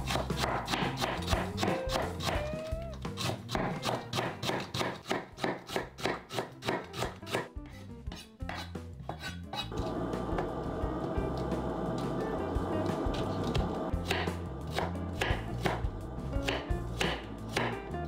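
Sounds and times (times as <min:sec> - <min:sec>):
knife chopping cabbage on board: 0:00.0 - 0:07.5, 0:08.1 - 0:09.6, 0:13.4 - 0:17.9.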